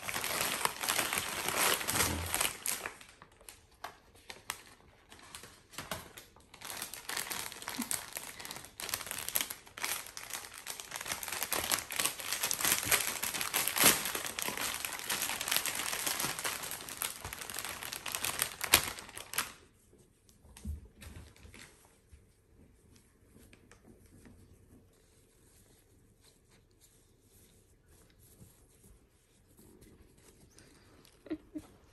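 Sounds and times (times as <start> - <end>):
packaging tearing: 0.0 - 3.1, 6.5 - 19.6
packaging crinkling and rustling: 0.0 - 19.7.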